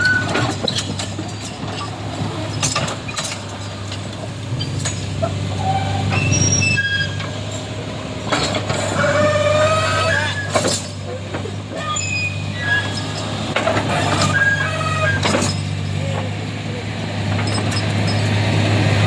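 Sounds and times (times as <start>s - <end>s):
diesel engines running: 0.0s - 19.0s
high squeaks: 5.6s - 7.2s, 11.8s - 13.3s, 14.0s - 15.6s.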